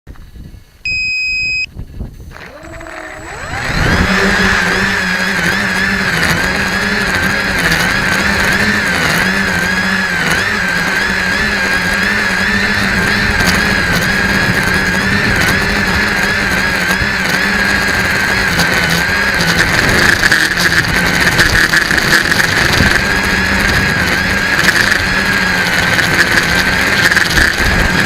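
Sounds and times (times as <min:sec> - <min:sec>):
electronic beep: 0:00.9 - 0:01.7
electric motors whining: 0:02.3 - 0:28.0.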